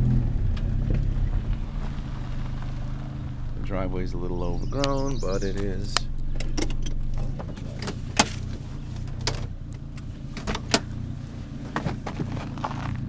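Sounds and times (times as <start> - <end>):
car engine running low: 0.0 - 13.0
sharp clicks and knocks: 5.5 - 11.0.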